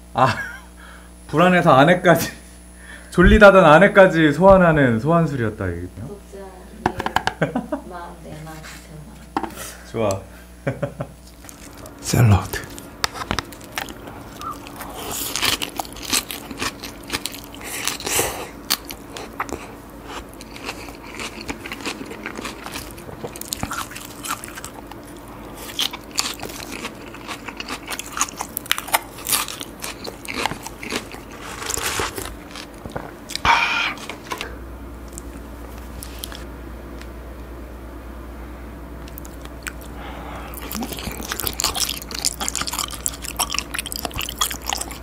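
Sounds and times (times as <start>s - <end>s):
crunching salad while chewing: 11.2s - 37.0s, 39.0s - 45.0s.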